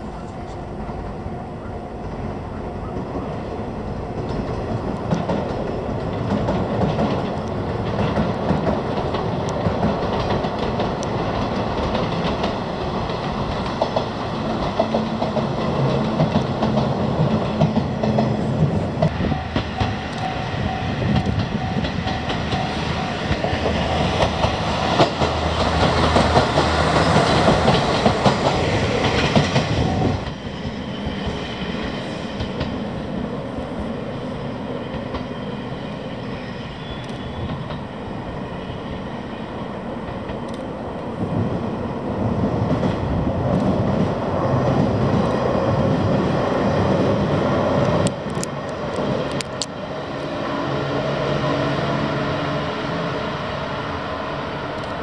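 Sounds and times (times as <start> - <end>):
train wheels clattering over rail joints: 4.1 - 33.1.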